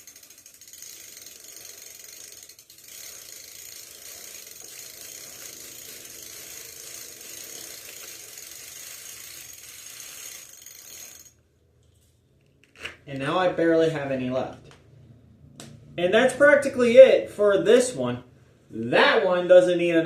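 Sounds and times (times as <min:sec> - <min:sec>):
bicycle freewheel clicking: 0:00.0 - 0:11.4.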